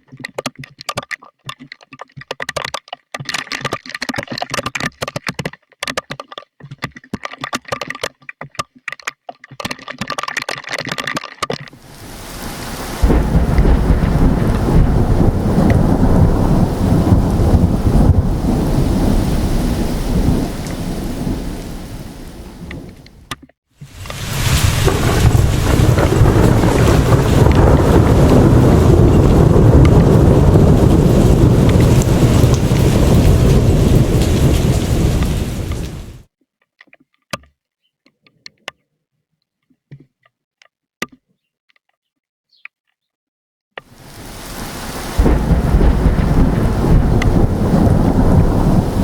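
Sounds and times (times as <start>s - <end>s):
thunder rumbling: 11.8s - 36.2s, 44.0s - 49.0s
steady rain: 11.8s - 36.3s, 43.9s - 49.0s.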